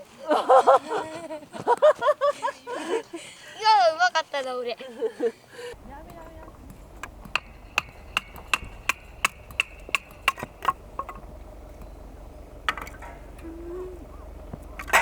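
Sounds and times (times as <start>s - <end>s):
rapid knocks: 5.8s - 13.4s.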